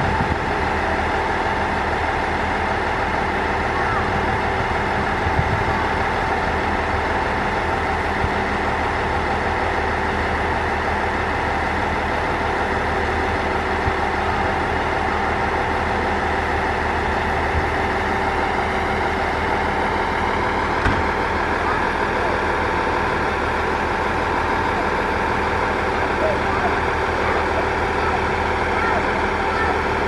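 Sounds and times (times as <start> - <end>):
diesel railcar engine idling: 0.0 - 30.0
faint engine knocks: 20.6 - 21.6.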